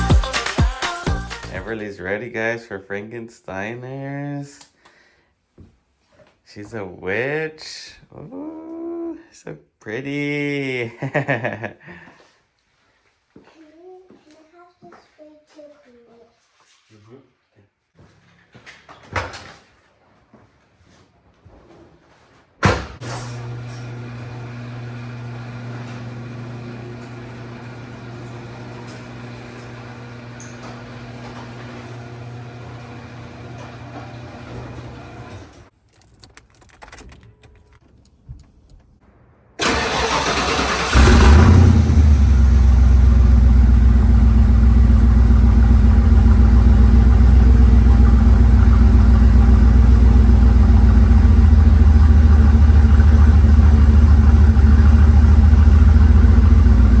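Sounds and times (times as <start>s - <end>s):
vehicle engine cranking and running: 39.6s - 57.0s
low hum: 41.0s - 57.0s.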